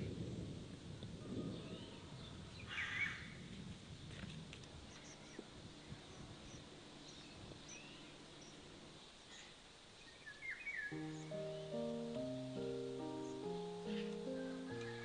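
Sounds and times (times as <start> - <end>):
low steady hum: 3.6 - 15.0
faint bird chirps: 4.8 - 15.0
music with held notes: 10.9 - 15.0.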